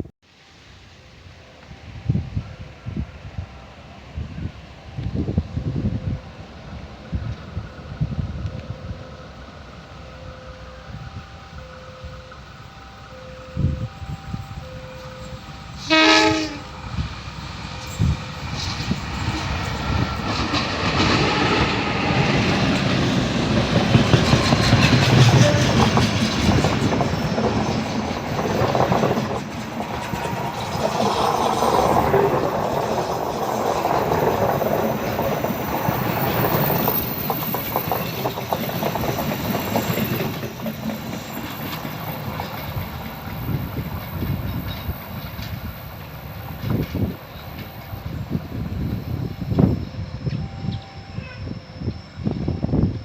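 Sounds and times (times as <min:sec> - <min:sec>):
train wheels clattering over rail joints: 0:17.0 - 0:47.7.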